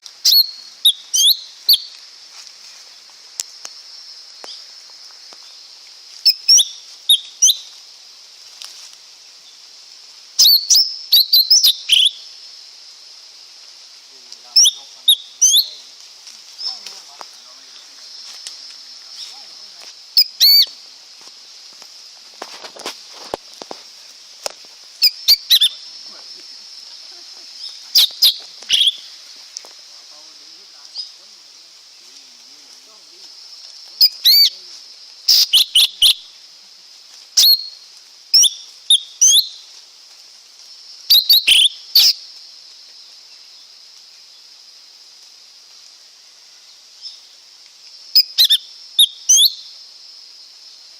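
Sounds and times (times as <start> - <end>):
steady high hiss: 0.0 - 50.9
bird whistling calls: 0.2 - 1.9, 6.2 - 7.7, 10.4 - 12.2, 14.6 - 15.8, 20.2 - 20.7, 25.0 - 25.8, 27.6 - 29.2, 34.0 - 34.5, 35.3 - 36.2, 37.4 - 37.8, 38.4 - 39.6, 41.1 - 42.2, 48.2 - 49.7.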